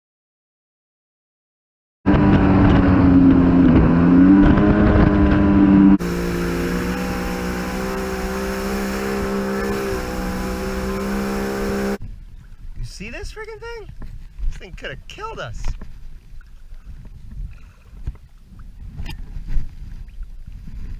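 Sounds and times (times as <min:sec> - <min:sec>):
jet ski engine running: 0:02.1 - 0:12.0.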